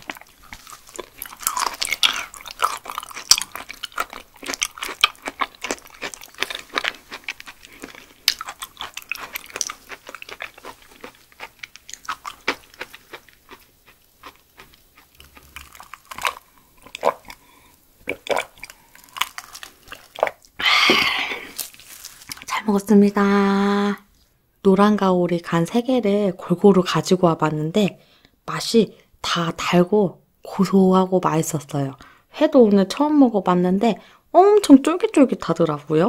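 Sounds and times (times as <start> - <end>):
chewing with wet mouth smacks: 0.0 - 17.4, 18.0 - 20.5.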